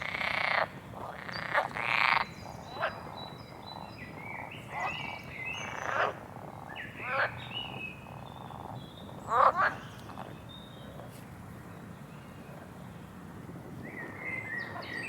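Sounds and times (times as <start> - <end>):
frogs croaking: 0.0 - 10.3.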